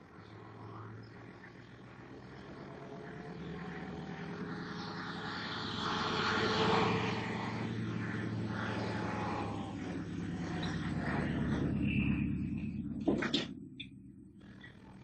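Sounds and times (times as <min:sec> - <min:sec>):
aircraft engine droning: 0:00.0 - 0:15.0.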